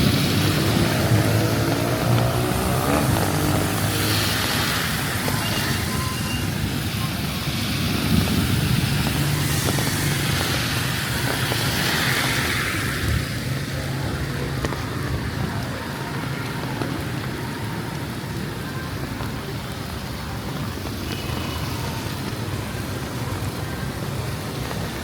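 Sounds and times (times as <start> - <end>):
steady rain hiss: 0.0 - 25.0
vehicle engines running: 0.0 - 25.0.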